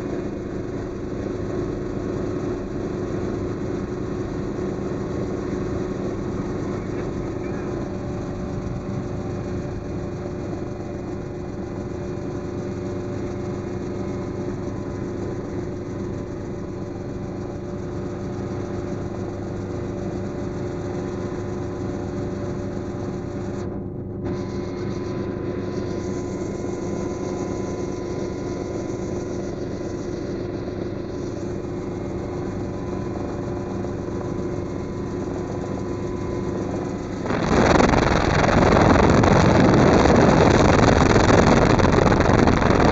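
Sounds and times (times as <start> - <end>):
helicopter engine and rotor: 0.0 - 42.9
wind noise on microphone: 36.7 - 42.9.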